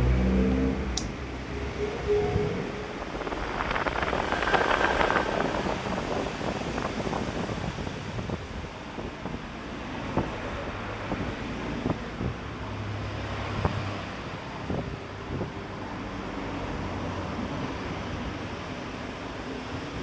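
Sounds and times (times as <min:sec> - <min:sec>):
electric fan rushing air: 0:01.0 - 0:09.1.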